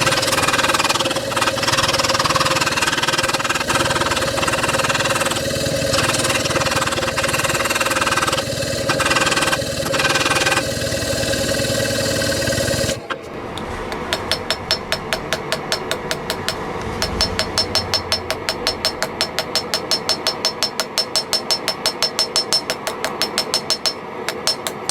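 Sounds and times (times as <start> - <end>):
loud pulsing machine noise: 0.0 - 19.5
hammer ringing on steel: 14.1 - 24.8.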